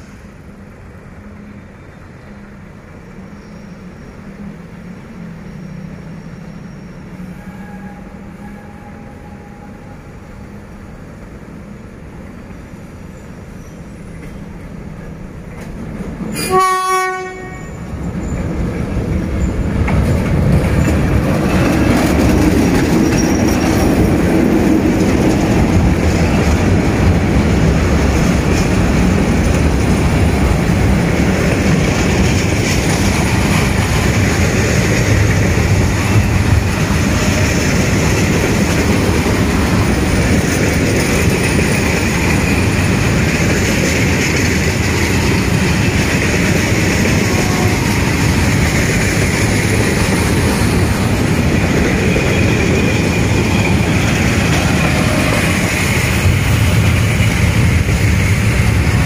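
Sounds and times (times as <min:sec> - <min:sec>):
freight train passing: 0:00.0 - 0:59.0
train horn blast: 0:07.2 - 0:09.9, 0:16.4 - 0:17.8, 0:47.2 - 0:48.3.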